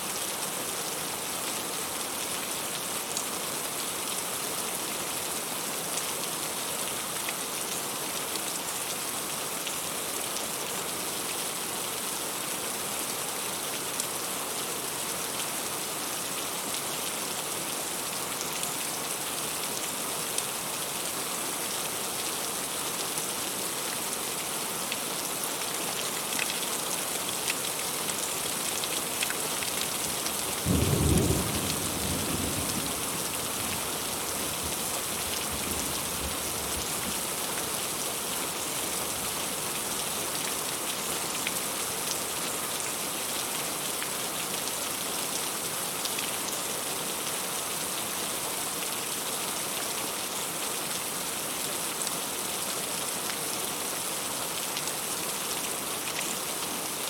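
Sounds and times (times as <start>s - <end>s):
heavy rain on leaves: 0.0s - 57.0s.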